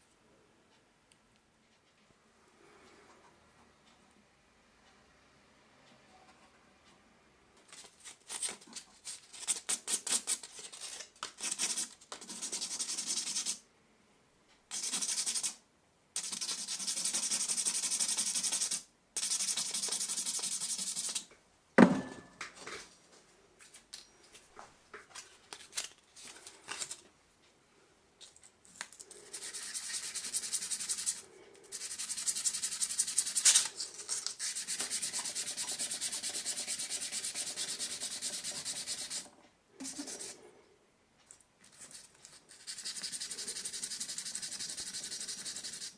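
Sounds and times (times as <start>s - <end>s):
sharp ringing knock: 21.8s - 22.4s
hand sanding scratchy rubbing: 29.3s - 39.2s, 39.8s - 40.4s, 42.4s - 45.9s.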